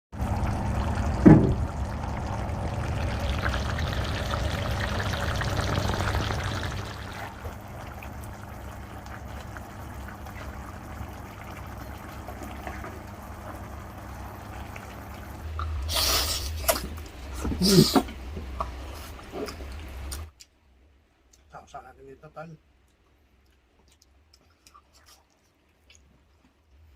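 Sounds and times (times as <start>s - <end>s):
liquid pouring: 0.2s - 13.0s.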